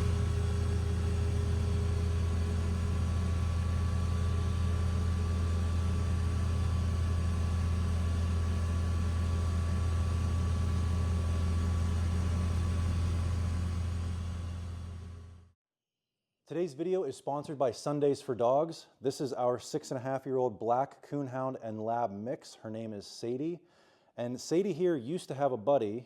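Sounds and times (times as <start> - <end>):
engine idling: 0.0 - 15.5.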